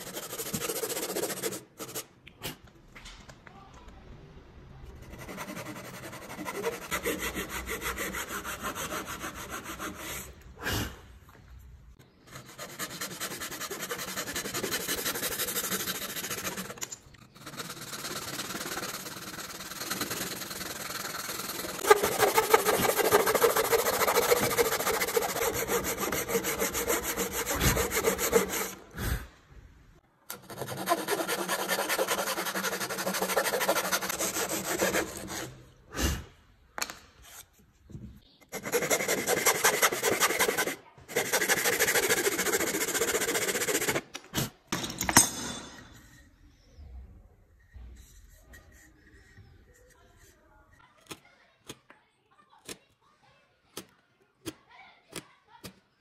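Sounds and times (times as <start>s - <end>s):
hand tool rubbing wood: 5.2s - 10.5s, 12.2s - 29.1s, 30.3s - 35.8s, 38.5s - 44.1s, 47.6s - 50.4s.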